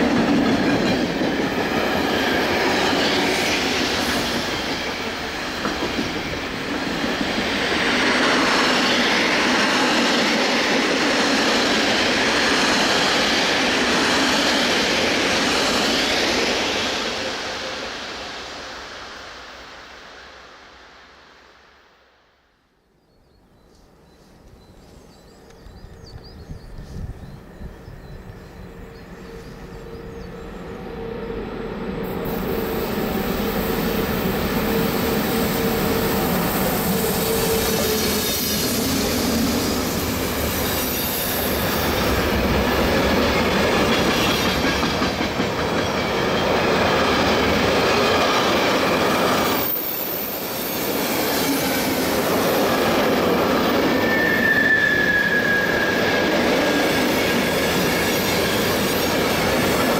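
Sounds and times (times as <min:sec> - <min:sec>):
train wheels rumbling: 0:00.0 - 0:20.6, 0:24.8 - 0:59.9
wheel squeal: 0:53.9 - 0:56.3.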